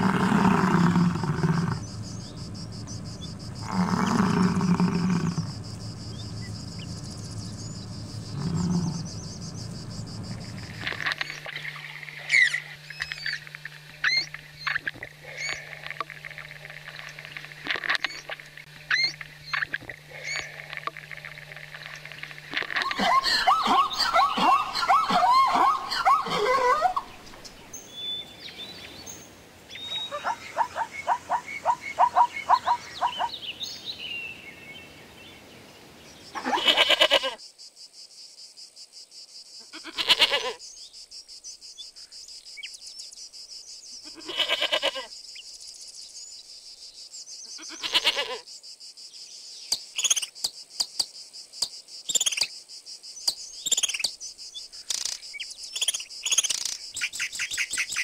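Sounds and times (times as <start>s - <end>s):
zebra braying: 0.0s - 27.7s, 30.0s - 33.4s
high insect-like hiss: 0.0s - 58.0s
hummingbird chirps: 0.6s - 14.8s, 21.8s - 34.6s, 53.2s - 58.0s
goat bleating: 36.4s - 37.4s, 39.7s - 40.6s, 44.0s - 45.1s, 47.6s - 48.4s.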